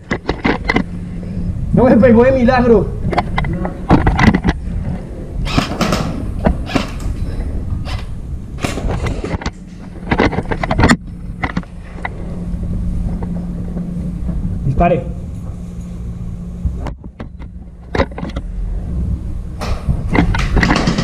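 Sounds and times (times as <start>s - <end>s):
low rumble: 0.0s - 21.0s
steady low hum: 0.0s - 21.0s.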